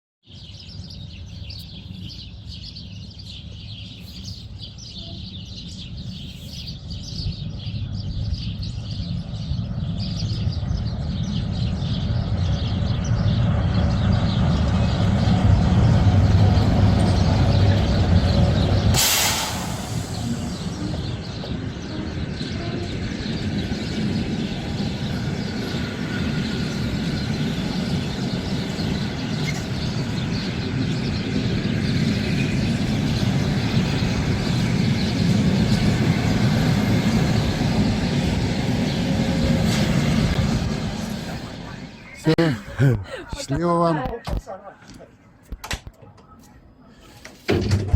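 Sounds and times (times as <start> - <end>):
train rumbling: 0.6 - 43.8
air brakes hissing: 18.9 - 20.7.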